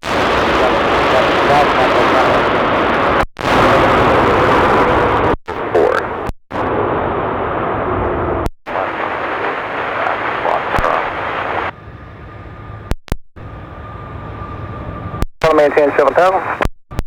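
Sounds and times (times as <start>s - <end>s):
radio static hiss: 0.0s - 6.8s, 8.7s - 11.7s, 15.4s - 16.7s.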